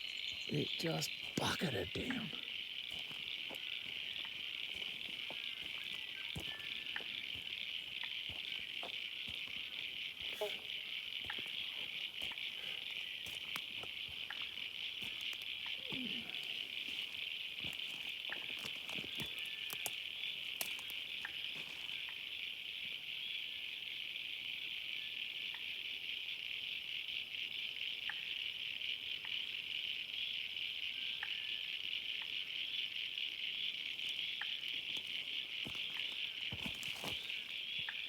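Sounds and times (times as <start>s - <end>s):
insects chorus: 0.0s - 38.0s
faint ticks and taps: 2.9s - 9.7s, 16.9s - 21.9s.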